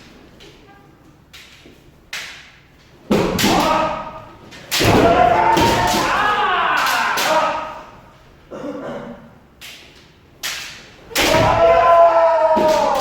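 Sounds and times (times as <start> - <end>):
bamboo swords striking: 3.1 - 7.7, 10.4 - 13.0
long drawn-out shout: 5.0 - 8.0, 11.2 - 13.0.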